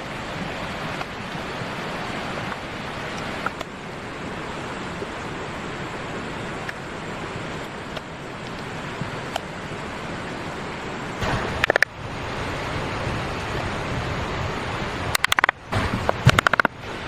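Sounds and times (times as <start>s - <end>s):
rushing outdoor noise: 0.0s - 17.0s
faint ticks and snaps: 15.2s - 16.7s.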